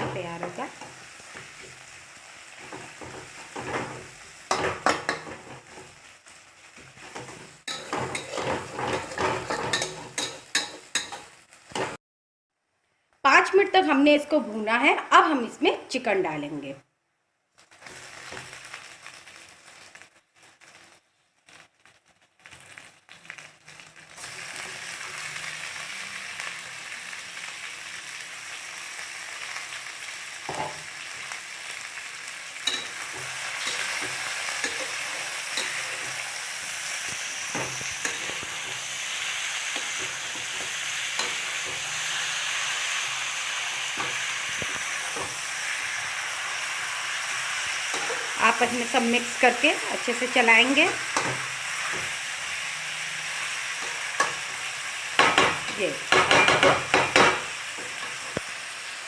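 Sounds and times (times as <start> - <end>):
chicken frying in oil: 0.0 - 12.0, 17.6 - 59.0
spoon knocking against pan: 55.2 - 57.5.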